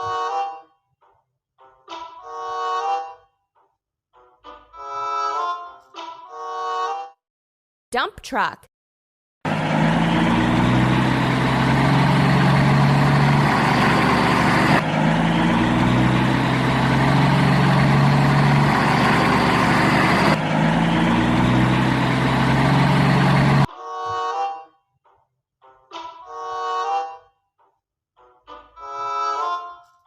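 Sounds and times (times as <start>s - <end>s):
dump truck engine running: 9.5s - 23.7s.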